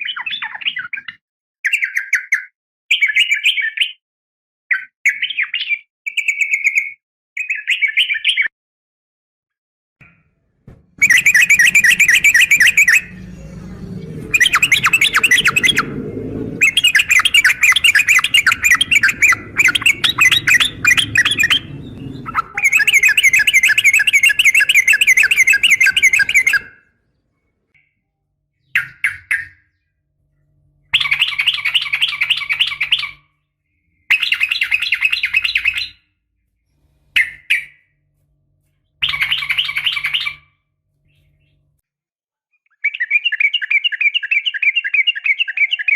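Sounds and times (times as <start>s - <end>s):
bird chattering trills: 11.0s - 26.8s, 31.0s - 33.2s, 34.1s - 36.0s, 39.0s - 40.4s.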